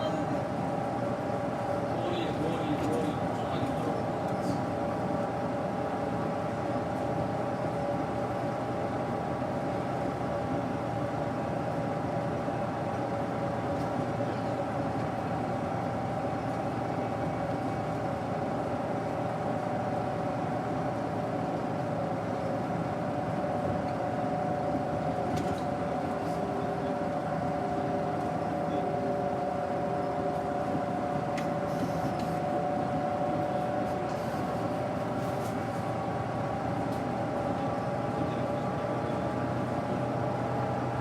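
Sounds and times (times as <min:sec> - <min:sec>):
bus engine drone: 0:00.0 - 0:41.0
constant whine: 0:00.0 - 0:41.0.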